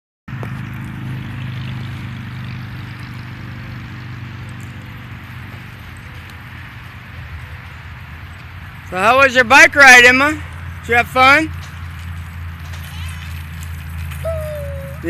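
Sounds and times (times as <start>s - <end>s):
low engine drone: 0.3s - 8.2s, 14.2s - 15.0s.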